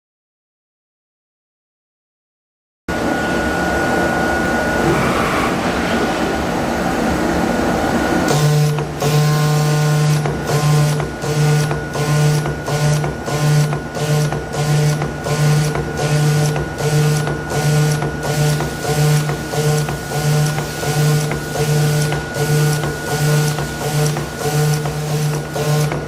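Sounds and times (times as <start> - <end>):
steady high machine whine: 2.9 - 26.0
cutting machine mechanical rhythm: 8.3 - 26.0.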